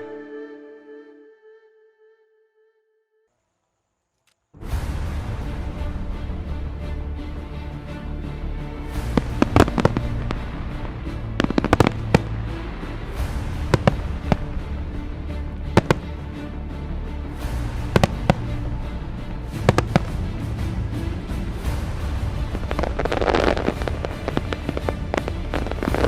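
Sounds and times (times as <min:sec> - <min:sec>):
music: 0:00.0 - 0:03.3, 0:04.4 - 0:26.0
fireworks banging: 0:09.1 - 0:10.4, 0:11.4 - 0:12.4, 0:13.3 - 0:14.6, 0:15.7 - 0:16.1, 0:17.8 - 0:18.5, 0:19.6 - 0:20.3, 0:22.5 - 0:26.0.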